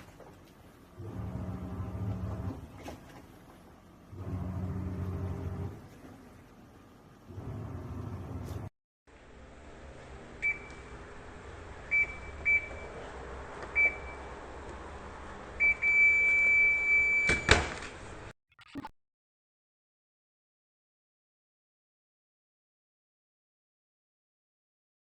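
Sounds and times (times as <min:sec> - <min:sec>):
washing machine beeping: 0:10.4 - 0:11.0, 0:11.8 - 0:13.0, 0:13.7 - 0:14.4, 0:15.6 - 0:17.5.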